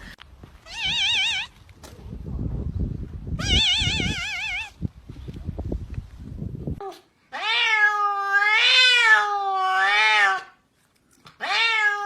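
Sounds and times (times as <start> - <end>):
cat meowing: 0.6 - 1.6, 3.4 - 4.8, 6.8 - 10.6, 11.4 - 12.0.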